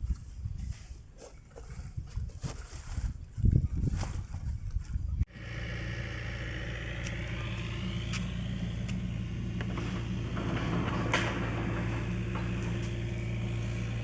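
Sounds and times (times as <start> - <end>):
low engine-like drone: 5.3 - 14.0
low bumping and rustling: 8.3 - 14.0.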